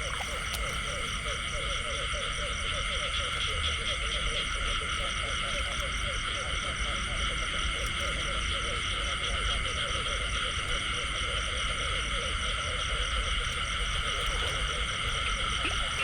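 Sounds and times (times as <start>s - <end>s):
low steady rumble: 0.0s - 7.6s, 8.2s - 16.0s
frogs croaking: 0.0s - 16.0s.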